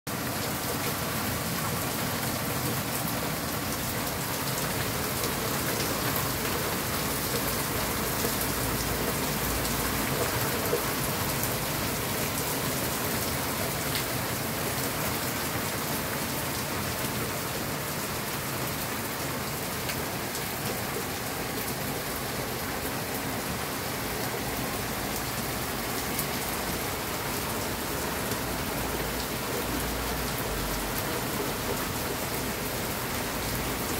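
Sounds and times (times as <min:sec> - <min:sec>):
heavy rain pouring: 0:00.1 - 0:33.9
raindrops pattering on surfaces: 0:00.1 - 0:33.9.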